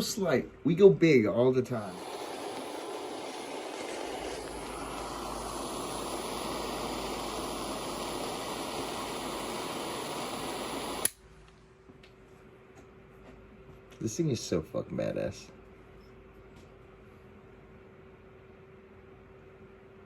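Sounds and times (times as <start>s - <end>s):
torch hissing: 1.8s - 11.2s
torch shut-off click: 1.8s - 11.2s.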